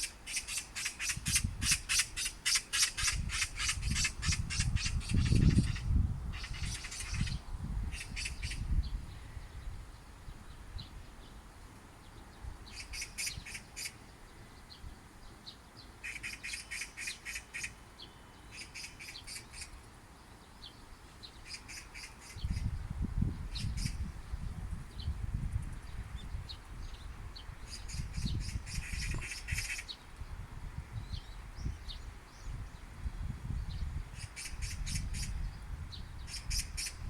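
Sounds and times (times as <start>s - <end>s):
magpie chattering call: 0.0s - 8.6s, 12.7s - 14.0s, 16.0s - 17.8s, 18.5s - 19.7s, 21.4s - 22.7s, 27.7s - 30.0s, 34.2s - 35.4s, 36.3s - 37.0s.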